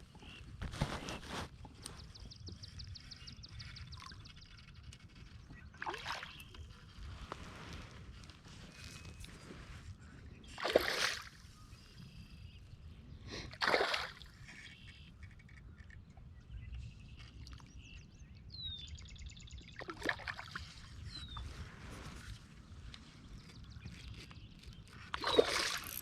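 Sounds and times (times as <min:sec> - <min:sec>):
water splashing at a kayak: 0:05.8 - 0:06.7, 0:10.5 - 0:11.5, 0:13.5 - 0:14.6, 0:19.8 - 0:22.1, 0:25.1 - 0:26.0.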